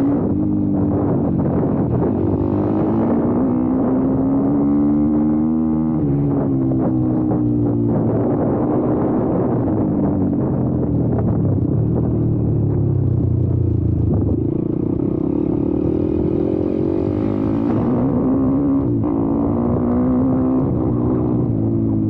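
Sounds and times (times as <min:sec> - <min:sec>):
motorbike engine revving: 0:00.0 - 0:06.9, 0:14.3 - 0:21.8.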